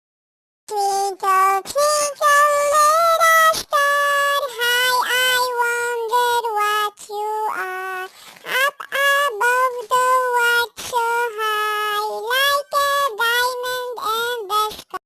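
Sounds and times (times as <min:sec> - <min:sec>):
child singing: 0:00.7 - 0:15.0.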